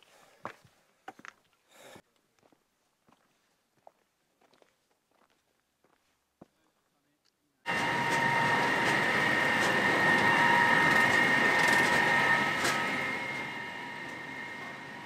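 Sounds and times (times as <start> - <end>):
train passing with high whine: 7.7 - 15.0
train rumbling: 7.7 - 15.0.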